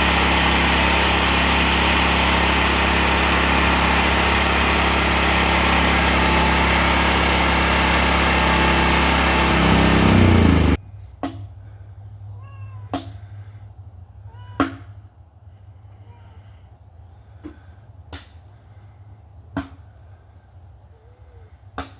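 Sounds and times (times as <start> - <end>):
generator engine running: 0.0 - 10.8.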